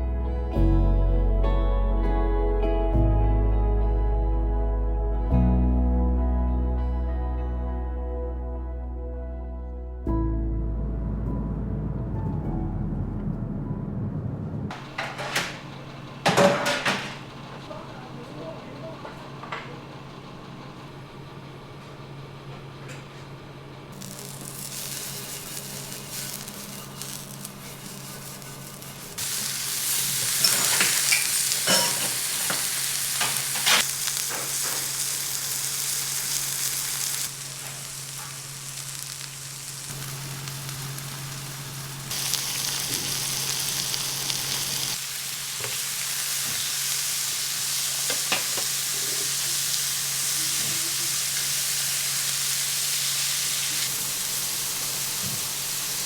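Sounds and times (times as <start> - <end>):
sizzling hiss with crackles: 23.9 - 56.0.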